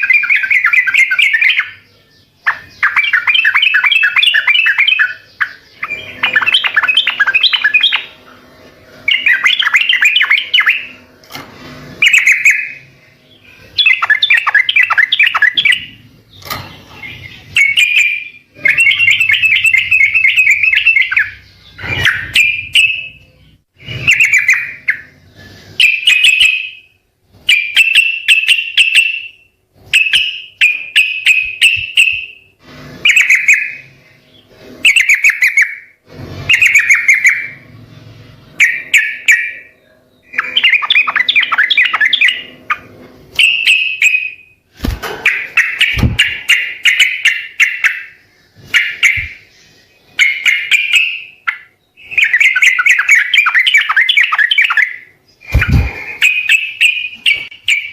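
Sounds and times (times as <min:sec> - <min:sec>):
bird chirping song: 0:00.0 - 0:11.1, 0:12.0 - 0:57.9.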